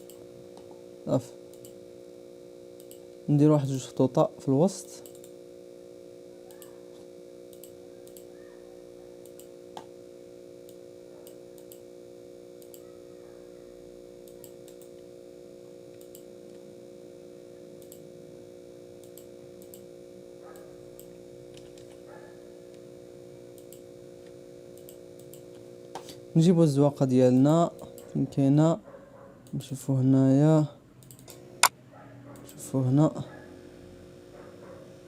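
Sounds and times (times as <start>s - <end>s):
steady electrical hum: 0.0s - 35.0s
computer mouse clicks: 1.5s - 1.8s, 2.8s - 3.0s, 4.8s - 5.4s, 6.5s - 6.8s, 7.5s - 8.3s, 9.2s - 9.9s, 10.7s - 11.8s, 12.6s - 12.9s, 14.2s - 15.0s, 15.9s - 16.6s, 17.8s - 18.0s, 19.0s - 19.8s, 23.6s - 26.2s, 31.0s - 31.4s.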